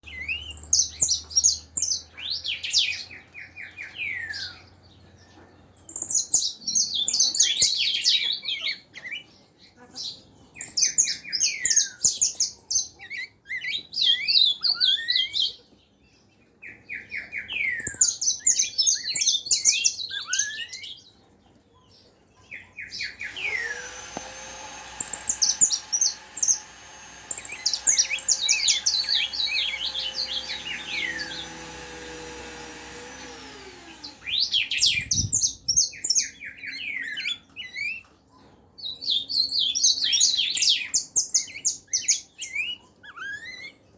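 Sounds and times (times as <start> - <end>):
songbird chirping and whistling: 0.0 - 2.8, 24.7 - 31.5
motor hum: 23.2 - 35.4.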